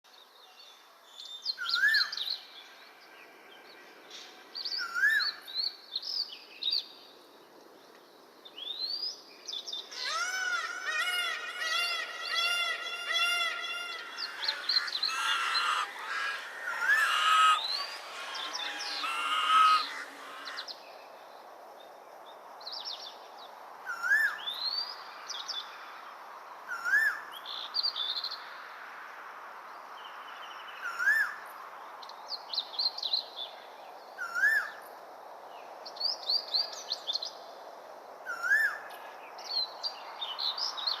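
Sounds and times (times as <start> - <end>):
birds calling and chirping: 9.6 - 21.1
rapid repeated bird calls: 9.6 - 21.2.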